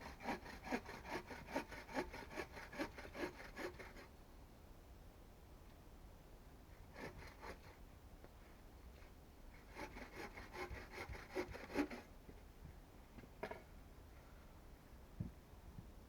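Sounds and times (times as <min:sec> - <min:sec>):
hand saw cutting wood: 0:00.0 - 0:04.1, 0:06.9 - 0:07.8, 0:09.6 - 0:12.1.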